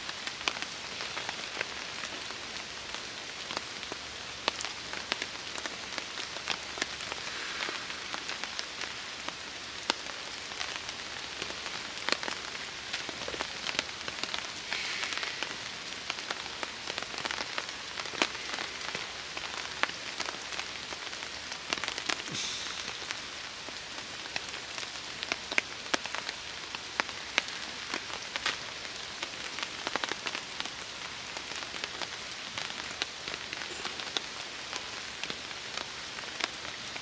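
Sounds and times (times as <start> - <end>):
rain falling on a tarp: 0.0 - 37.0.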